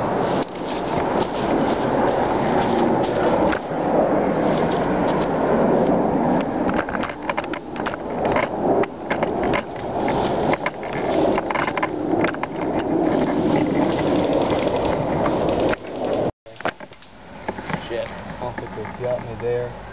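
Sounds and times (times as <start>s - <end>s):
tripod scraping and rubbing: 0.0s - 19.5s
tripod clicks and knocks: 5.8s - 17.8s.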